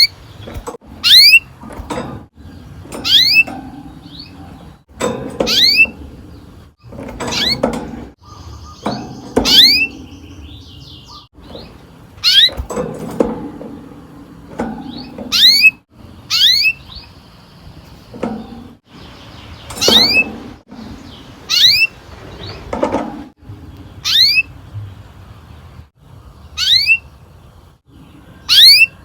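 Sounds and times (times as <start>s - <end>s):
canary whistled calls: 26.6s - 27.1s.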